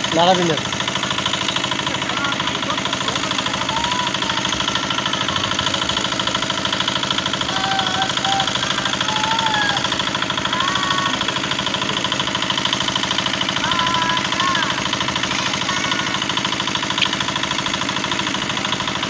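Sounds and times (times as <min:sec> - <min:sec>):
small engine idling: 0:00.0 - 0:19.0.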